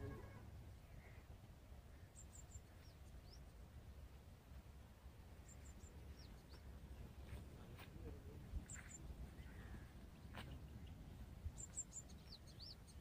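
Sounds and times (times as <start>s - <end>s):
small birds chirping: 0.0s - 3.9s, 5.2s - 13.0s.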